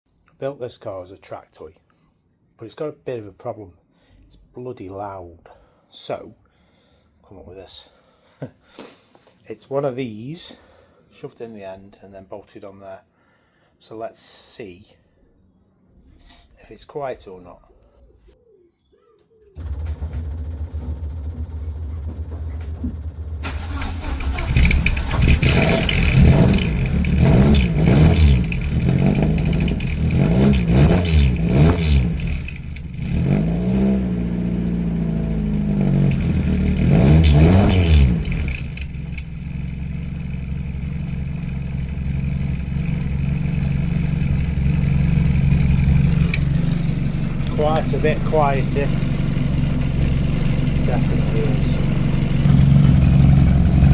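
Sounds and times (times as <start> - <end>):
car engine idling and revving: 19.6 - 53.9
car engine starting: 19.6 - 53.9.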